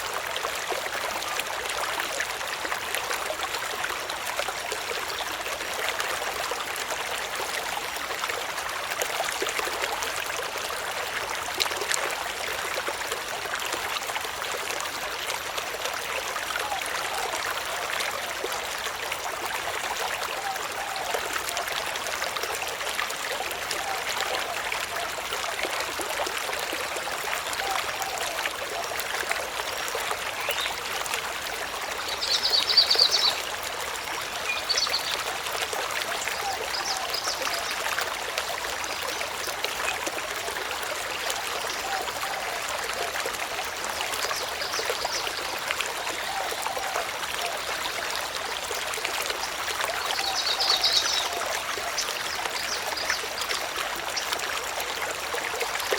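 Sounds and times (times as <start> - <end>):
running water rushing: 0.0 - 55.9.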